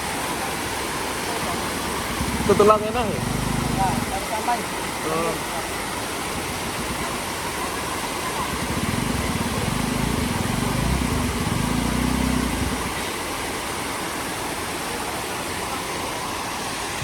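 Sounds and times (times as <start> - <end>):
steady rushing hiss: 0.0 - 15.1
vehicle engine running low: 1.3 - 5.4, 8.0 - 13.2.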